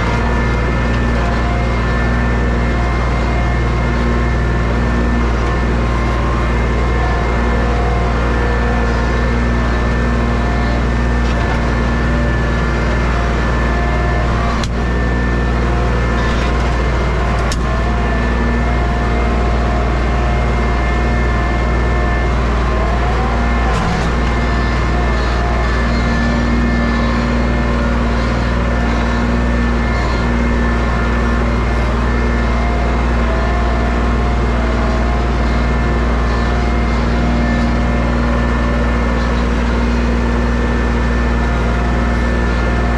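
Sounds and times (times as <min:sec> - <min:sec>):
engine running steadily: 0:00.0 - 0:42.9.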